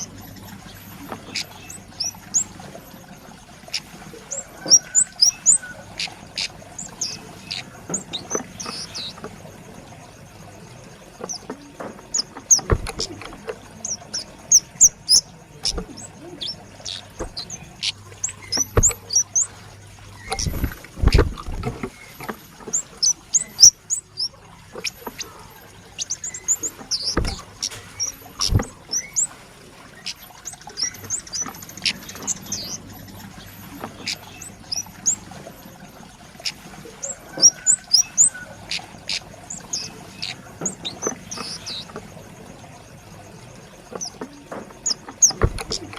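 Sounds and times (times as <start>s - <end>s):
sharp knocks: 18.5s - 19.2s.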